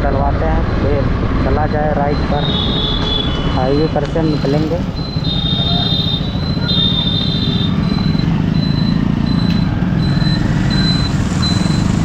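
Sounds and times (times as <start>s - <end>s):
high electronic beep: 1.5s - 12.0s
motorcycle engine running: 4.3s - 12.0s.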